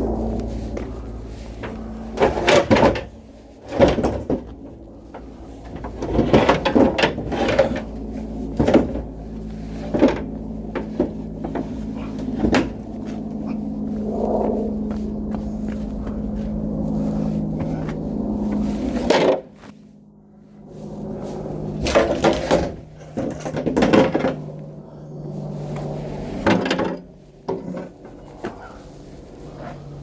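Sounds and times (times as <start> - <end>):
steady low hum: 0.0 - 30.0
objects knocking and clattering: 5.8 - 7.8.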